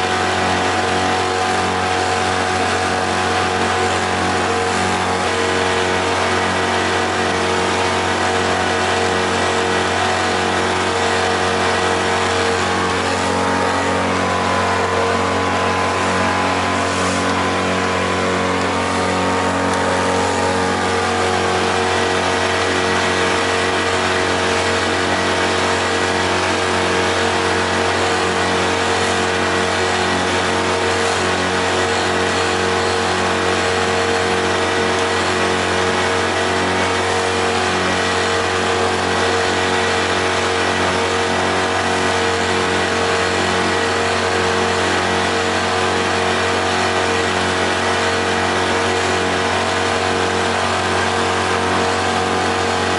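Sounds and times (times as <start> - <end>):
outboard motor running: 0.0 - 52.9
rush of noise: 10.8 - 24.8.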